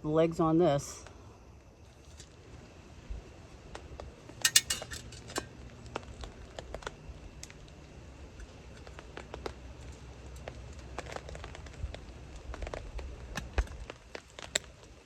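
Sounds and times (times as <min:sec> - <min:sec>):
metal table parts clicking: 0:04.4 - 0:05.5.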